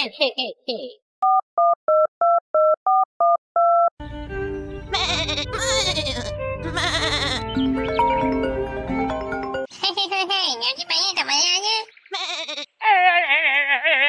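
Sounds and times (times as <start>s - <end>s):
telephone keypad dialing tones: 1.2s - 3.9s
background music: 4.0s - 9.7s
high wavering cries: 4.9s - 9.0s.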